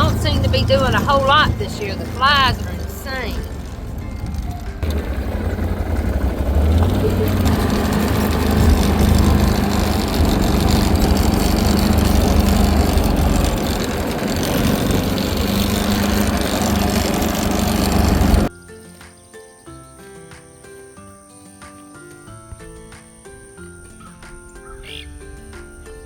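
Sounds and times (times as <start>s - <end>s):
broad rushing noise: 0.0s - 18.5s
vehicle engine droning: 0.0s - 18.5s.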